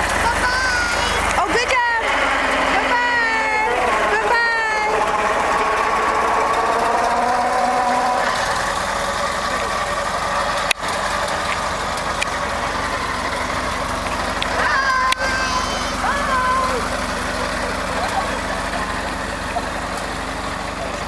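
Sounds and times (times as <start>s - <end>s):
faint voices: 0.0s - 10.7s, 13.6s - 21.0s
old car engine running slowly: 0.0s - 21.0s.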